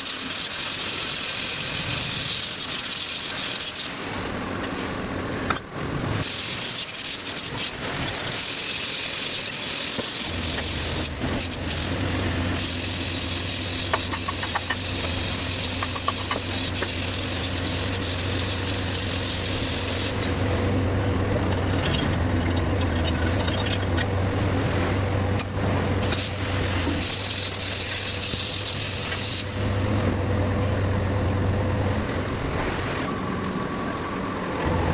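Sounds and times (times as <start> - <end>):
metal rasping and scraping: 6.6 - 30.1
engine humming: 10.3 - 34.9.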